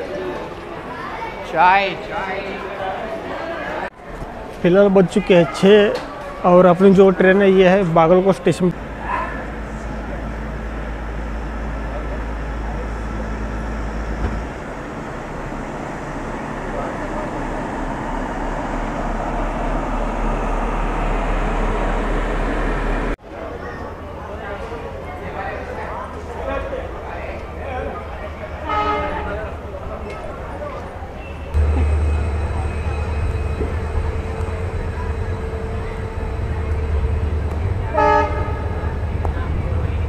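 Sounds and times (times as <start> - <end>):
train rumbling past: 6.0 - 40.0
short train horn toot: 28.6 - 29.3, 37.9 - 38.8
low hum: 31.5 - 40.0.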